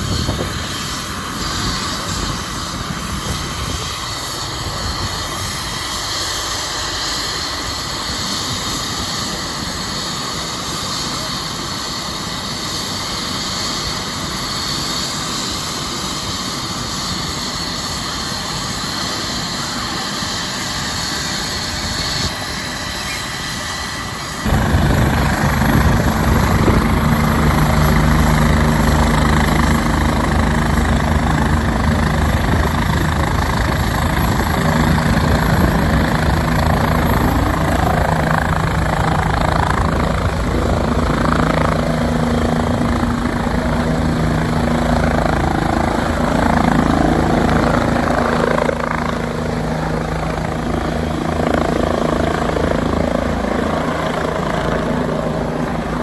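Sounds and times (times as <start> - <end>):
engine drone: 24.4 - 56.0.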